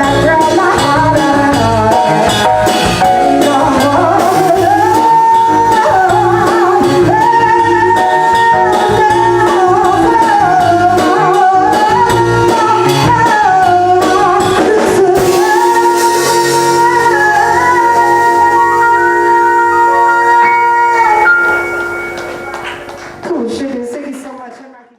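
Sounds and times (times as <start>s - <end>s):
electric bass: 0.0s - 23.1s
keyboard: 0.0s - 24.0s
drum kit: 0.0s - 24.4s
melody line: 15.2s - 23.3s.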